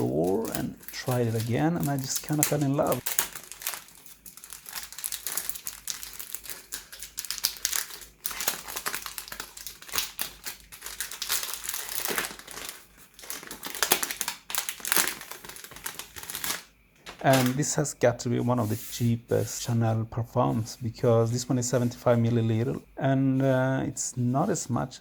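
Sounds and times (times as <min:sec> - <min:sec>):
packaging crinkling and rustling: 0:00.0 - 0:17.7.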